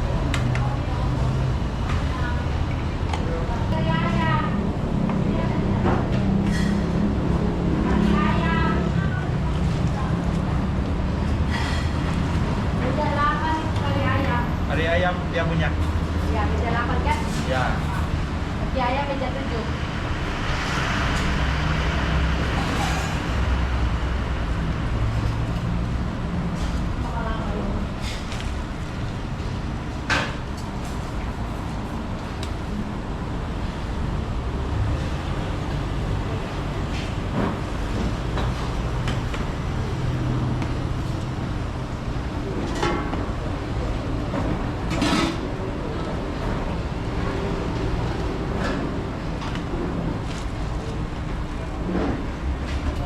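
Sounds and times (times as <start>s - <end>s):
road traffic noise: 0.0s - 53.0s
vehicle engine humming: 15.7s - 53.0s.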